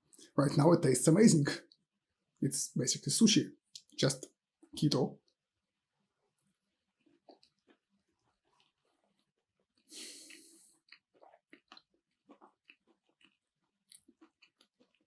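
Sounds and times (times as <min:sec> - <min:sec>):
wet mouth clicks while chewing: 0:07.0 - 0:09.3, 0:09.9 - 0:15.0.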